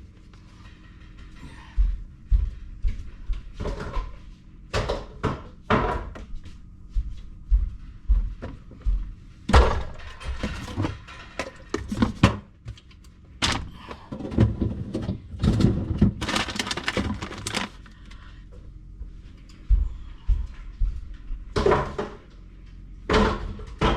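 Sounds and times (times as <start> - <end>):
containers and jars clattering: 15.3 - 17.9.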